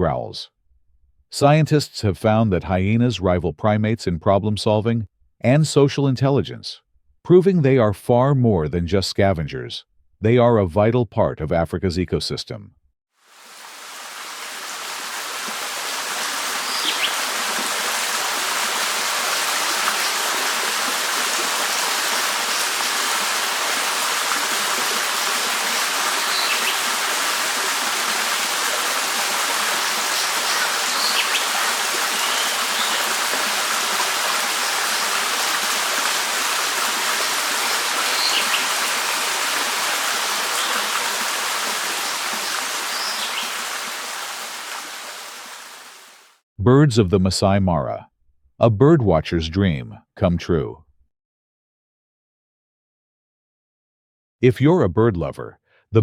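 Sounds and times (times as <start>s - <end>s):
stream water rushing: 13.2s - 46.3s
bird chirps: 16.7s - 17.2s, 26.2s - 26.8s, 30.2s - 31.5s, 32.2s - 33.0s, 38.1s - 38.7s, 42.9s - 43.5s.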